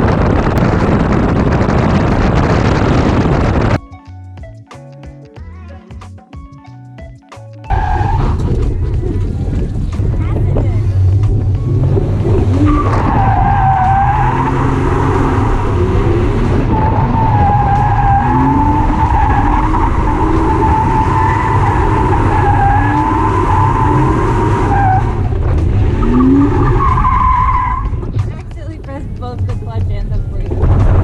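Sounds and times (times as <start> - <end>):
car engine running: 0.0 - 3.8, 7.7 - 31.0
tyres squealing: 11.7 - 25.3.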